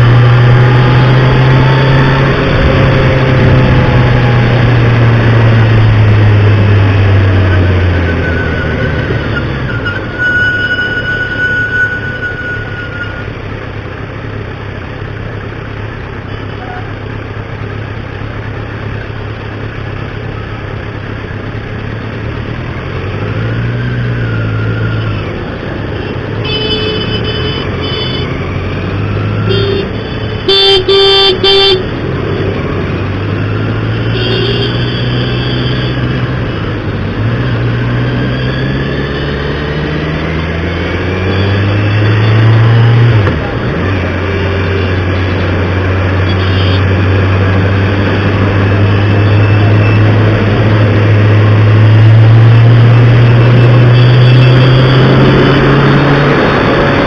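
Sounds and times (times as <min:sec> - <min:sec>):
vehicle engines running: 0:00.0 - 0:57.0
vehicle horns honking: 0:26.0 - 0:28.4, 0:29.5 - 0:31.9, 0:34.0 - 0:36.1, 0:46.2 - 0:46.9, 0:53.9 - 0:55.2.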